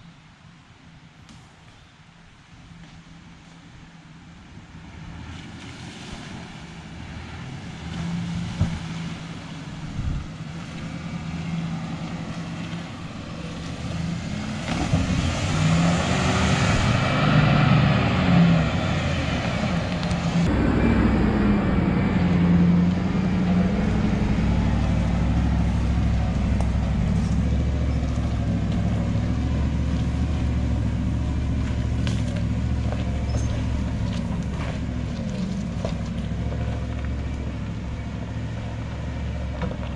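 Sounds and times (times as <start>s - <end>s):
truck engine revving: 5.0s - 39.9s.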